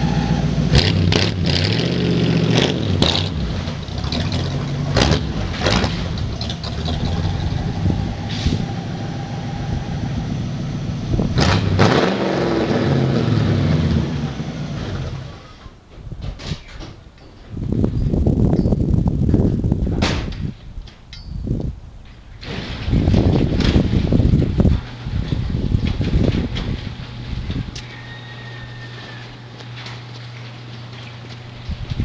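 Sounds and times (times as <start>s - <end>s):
vv eight engine revving: 0.0s - 15.7s.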